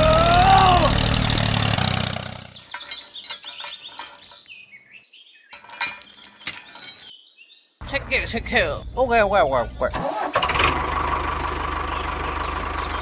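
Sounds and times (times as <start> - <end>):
small birds chirping: 1.9 - 10.0, 11.7 - 13.0
steady engine-like sound: 9.9 - 13.0.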